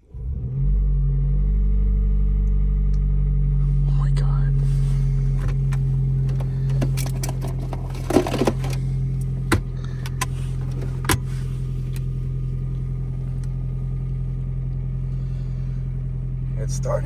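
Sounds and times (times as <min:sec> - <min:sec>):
car engine humming: 0:00.0 - 0:17.0
clicks and rattles: 0:05.4 - 0:11.2.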